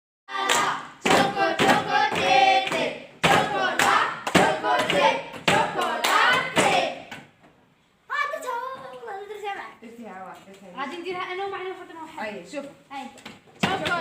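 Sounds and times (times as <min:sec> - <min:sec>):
children singing: 0:00.3 - 0:07.1
rhythmic hand clapping: 0:00.3 - 0:07.3, 0:13.6 - 0:14.0.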